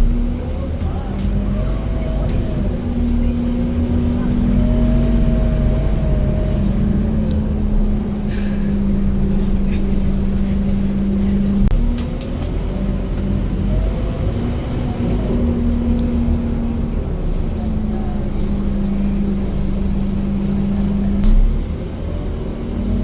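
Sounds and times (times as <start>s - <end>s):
bus diesel engine droning: 0.0s - 23.0s.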